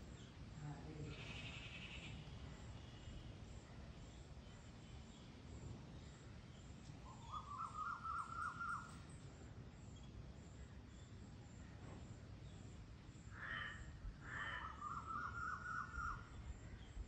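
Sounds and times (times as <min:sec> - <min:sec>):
birds trilling and warbling: 0:06.0 - 0:09.2, 0:13.3 - 0:17.0.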